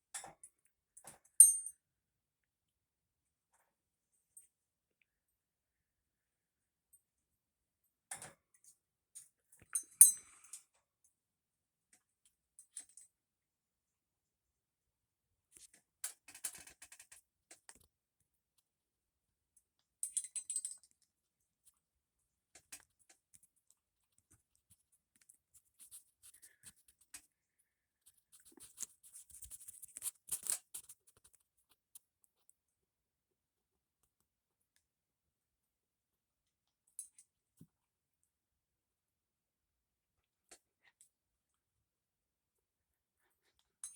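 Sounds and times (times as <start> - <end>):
parrot clicking and scratching: 24.3 - 27.3, 28.1 - 31.8.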